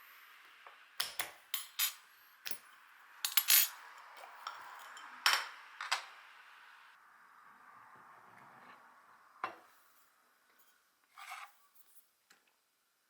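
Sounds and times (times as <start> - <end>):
utensils and dishes clinking: 1.0 - 2.6, 3.3 - 6.0.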